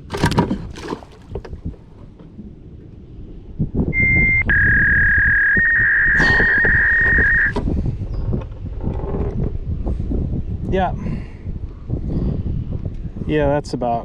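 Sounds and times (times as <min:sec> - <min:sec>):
knocks and clatter of gear: 0:00.0 - 0:02.3
high-pitched tone: 0:04.0 - 0:07.5.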